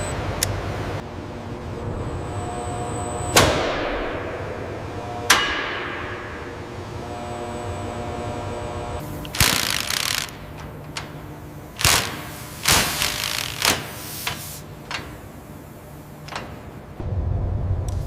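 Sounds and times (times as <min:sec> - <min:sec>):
factory hum: 0:00.0 - 0:18.0
loud metallic clangs: 0:05.2 - 0:06.6
short hissing burst: 0:11.8 - 0:14.7.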